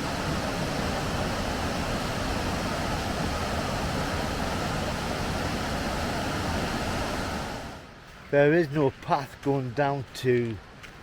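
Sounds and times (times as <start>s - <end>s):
waterfall roaring: 0.0s - 7.9s.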